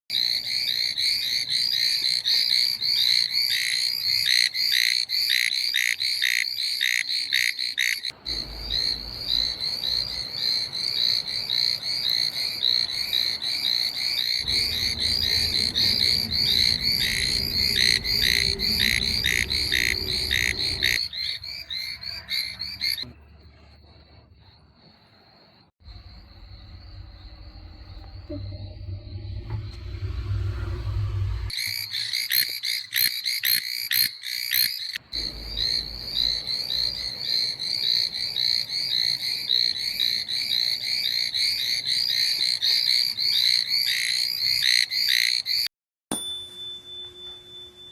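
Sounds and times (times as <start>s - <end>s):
tree toads calling: 0.1s - 23.2s, 31.5s - 45.7s
faint insect trill: 0.1s - 30.4s.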